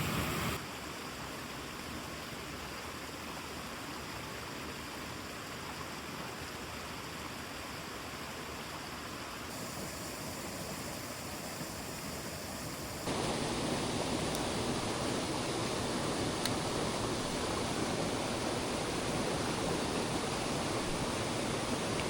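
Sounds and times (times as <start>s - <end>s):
mountain stream rushing: 9.8s - 22.0s.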